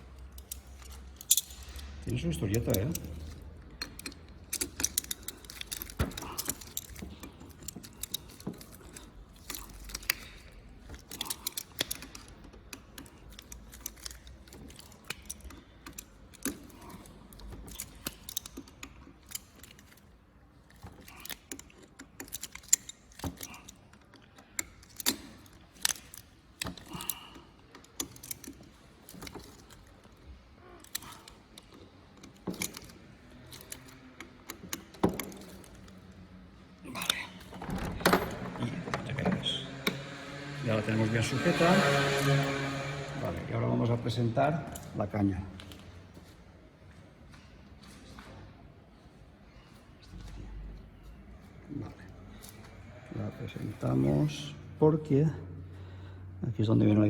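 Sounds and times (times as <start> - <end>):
wrench clinking on bolts: 0.1 - 20.1, 30.7 - 36.3.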